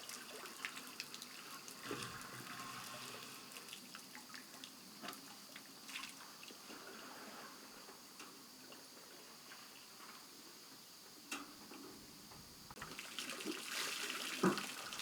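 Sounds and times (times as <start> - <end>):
small water splashes and drips: 0.0 - 6.9, 12.7 - 15.0.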